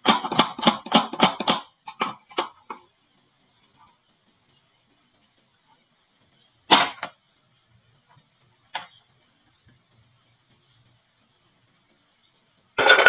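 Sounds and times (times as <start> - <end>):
marbles clacking on wooden run: 12.8 - 13.0.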